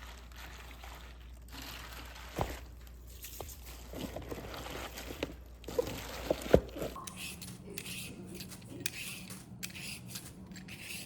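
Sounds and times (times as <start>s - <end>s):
repeated scraping or cutting strokes: 7.0s - 11.0s.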